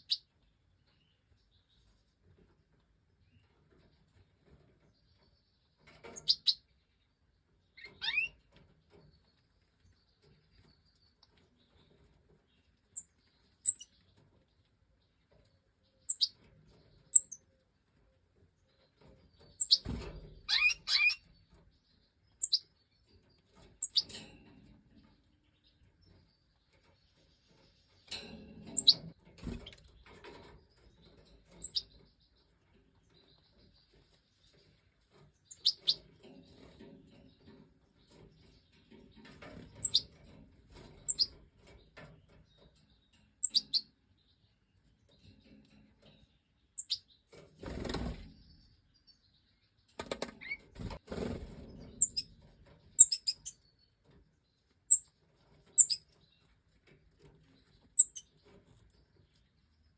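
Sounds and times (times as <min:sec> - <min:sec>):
goldfinch chirping: 0:06.1 - 0:06.7, 0:07.8 - 0:08.4, 0:13.0 - 0:14.1, 0:16.0 - 0:17.4, 0:19.4 - 0:21.4, 0:22.1 - 0:23.0, 0:23.8 - 0:24.1, 0:28.6 - 0:29.8, 0:31.4 - 0:32.4, 0:35.4 - 0:36.2, 0:39.5 - 0:40.2, 0:41.0 - 0:41.4, 0:42.9 - 0:44.6, 0:46.7 - 0:47.2, 0:51.8 - 0:53.9, 0:54.8 - 0:56.4, 0:57.6 - 0:58.5.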